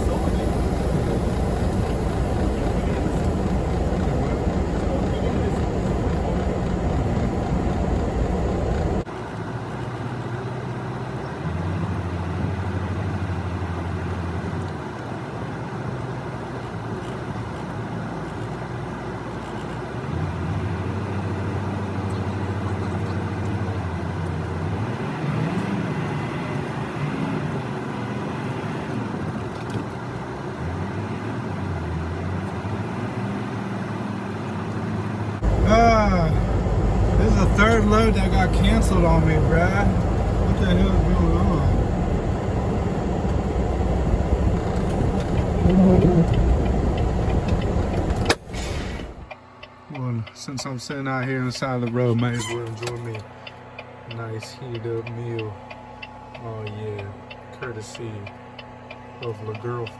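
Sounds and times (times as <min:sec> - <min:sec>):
truck engine revving: 0:00.0 - 0:09.1, 0:34.8 - 0:49.4.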